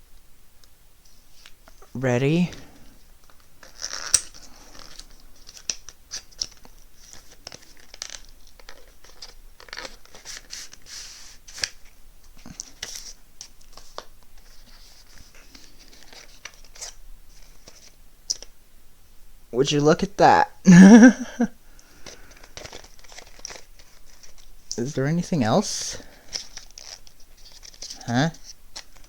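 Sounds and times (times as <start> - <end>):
packaging crinkling and tearing: 3.3 - 10.9, 11.5 - 18.5, 21.9 - 24.6, 26.0 - 29.0.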